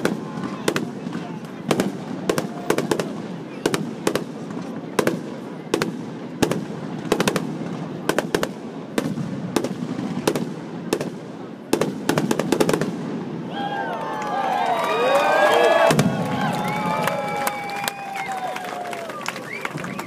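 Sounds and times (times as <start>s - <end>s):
fireworks bursting with sharp bangs: 0.0s - 13.5s, 15.7s - 17.2s.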